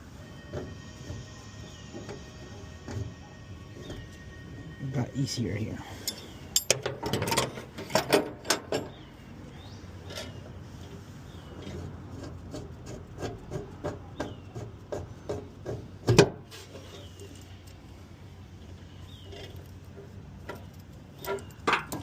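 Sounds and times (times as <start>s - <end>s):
clicks and knocks of hose fittings: 6.0s - 8.9s, 20.4s - 22.0s.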